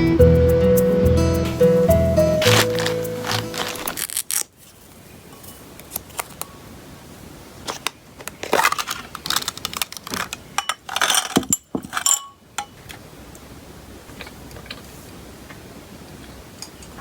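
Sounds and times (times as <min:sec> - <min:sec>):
rustling: 0:01.6 - 0:06.4
small hard objects clicking: 0:02.4 - 0:04.2.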